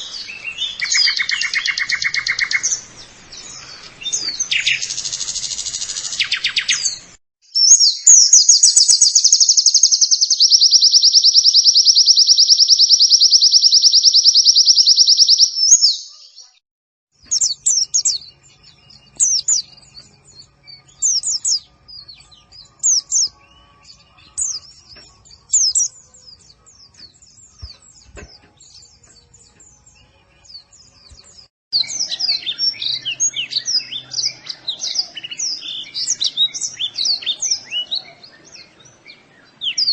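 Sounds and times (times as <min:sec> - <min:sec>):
bird fast trill: 0:00.0 - 0:16.4, 0:17.3 - 0:38.7
bird twittering: 0:00.0 - 0:16.4, 0:17.3 - 0:30.1, 0:31.8 - 0:39.9
short high bird chirps: 0:00.0 - 0:16.6, 0:17.3 - 0:26.0.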